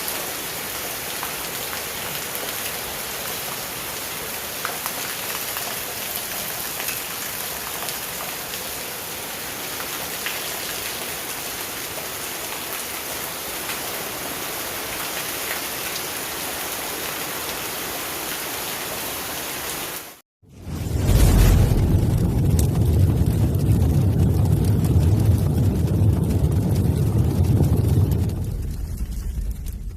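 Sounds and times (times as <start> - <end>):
steady rain: 0.0 - 29.9
sharp raindrop taps: 22.1 - 29.9.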